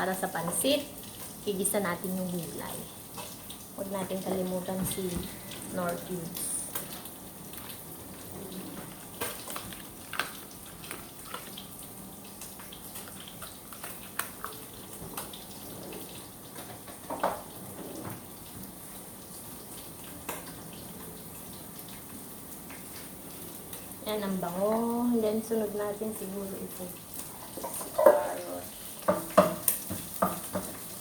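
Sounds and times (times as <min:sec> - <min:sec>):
vegetables sizzling in oil: 0:00.0 - 0:31.0.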